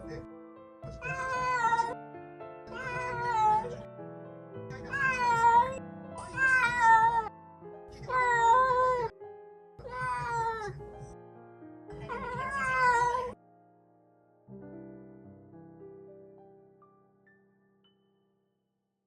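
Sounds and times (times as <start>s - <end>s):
cat meowing loudly: 1.0s - 2.0s, 2.7s - 3.8s, 4.8s - 7.3s, 8.1s - 9.1s, 9.8s - 10.7s, 12.1s - 13.4s.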